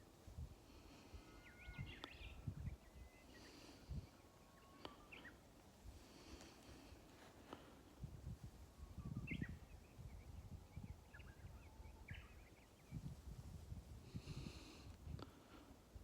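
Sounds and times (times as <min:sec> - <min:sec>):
small birds chirping: 0:00.8 - 0:06.8, 0:08.9 - 0:13.2.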